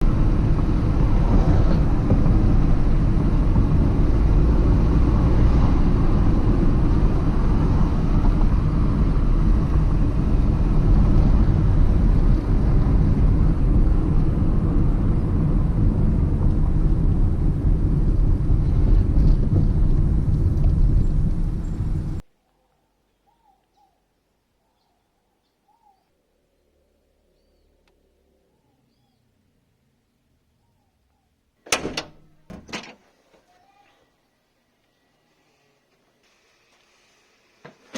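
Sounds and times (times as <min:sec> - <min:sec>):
car engine rumbling: 0:00.0 - 0:22.2
faint chirps: 0:22.4 - 0:26.7.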